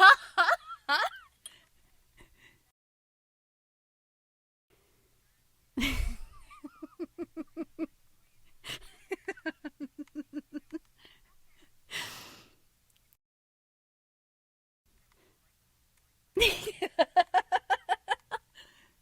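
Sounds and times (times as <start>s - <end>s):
woman laughing: 0.0s - 1.3s, 5.8s - 7.9s, 8.6s - 10.8s, 16.4s - 18.6s
gasping in-breath: 18.5s - 19.0s.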